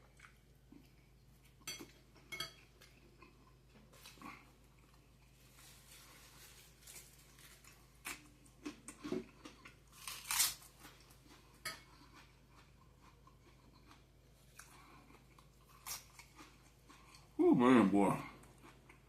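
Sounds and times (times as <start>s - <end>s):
person chewing food: 0.0s - 17.4s, 18.1s - 19.0s
crisp crunches: 10.0s - 10.7s.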